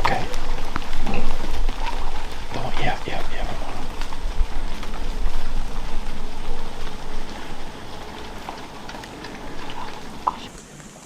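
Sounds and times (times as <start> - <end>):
low rumble: 0.0 - 10.6
hogs crunching food: 0.0 - 11.0.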